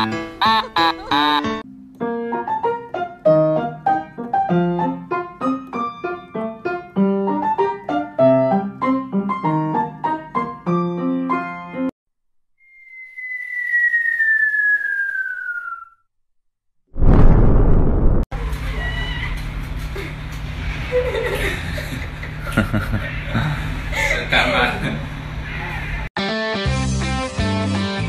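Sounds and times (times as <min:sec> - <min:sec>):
high tone gliding downward: 0:12.6 - 0:16.0.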